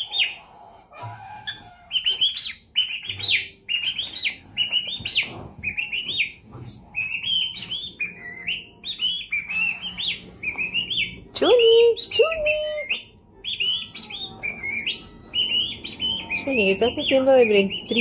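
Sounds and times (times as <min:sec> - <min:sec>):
parrot chirping: 0:00.0 - 0:18.0.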